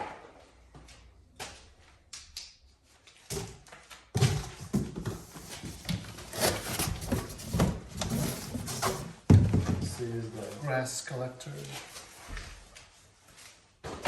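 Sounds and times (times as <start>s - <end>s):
packaging rustling and knocking: 4.2s - 9.9s.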